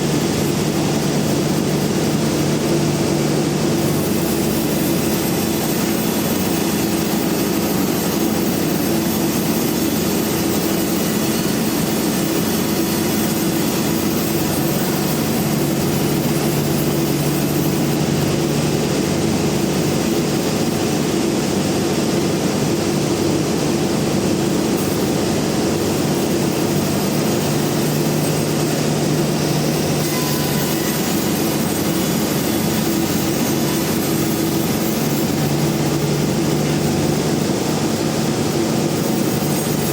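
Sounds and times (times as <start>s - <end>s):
band sawmill machine drone: 0.0s - 39.9s.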